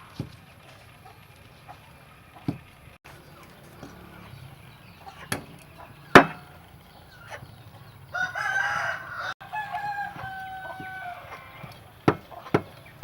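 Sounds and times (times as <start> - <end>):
rooster crowing: 3.3 - 12.6.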